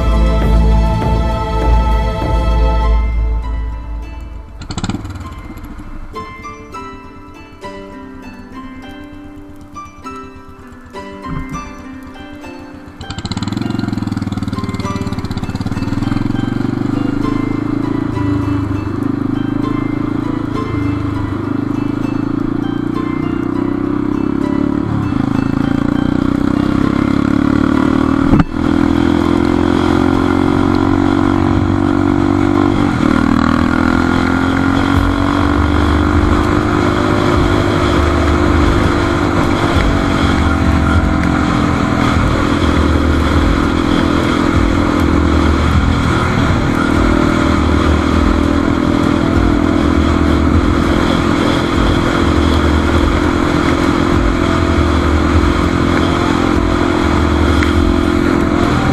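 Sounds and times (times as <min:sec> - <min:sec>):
motorcycle engine revving: 0:00.0 - 0:06.2, 0:12.9 - 0:58.9.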